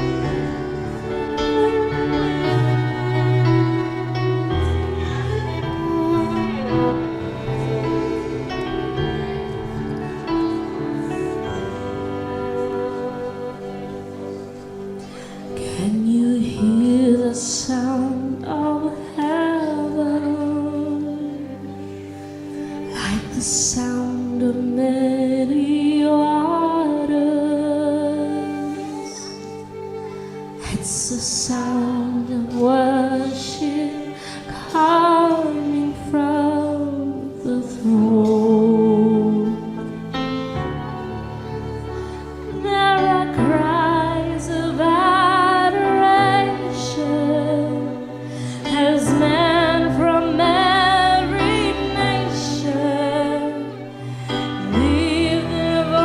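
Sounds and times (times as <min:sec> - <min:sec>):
sustained instrumental chords: 0:00.0 - 0:16.4
sustained accompaniment chords: 0:00.0 - 0:56.0
woman singing with vibrato: 0:15.6 - 0:21.5, 0:42.6 - 0:53.8, 0:54.6 - 0:56.0.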